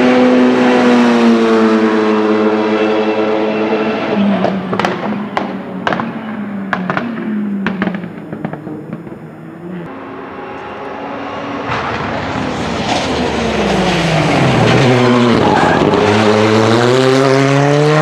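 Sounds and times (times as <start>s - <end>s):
rally car engine: 0.0s - 18.0s
sharp exhaust pops and bangs: 4.0s - 9.9s.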